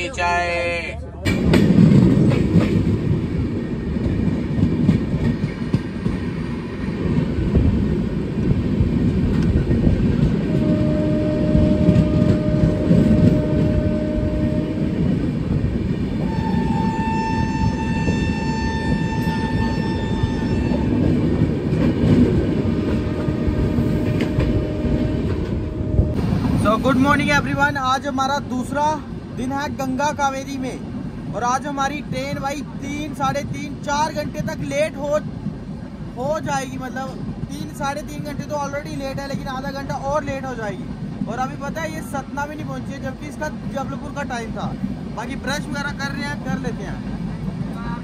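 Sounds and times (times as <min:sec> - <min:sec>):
train rumble and wheel clatter: 0:00.0 - 0:48.0
train horn blasts: 0:10.4 - 0:15.0, 0:16.2 - 0:21.2, 0:22.8 - 0:26.3.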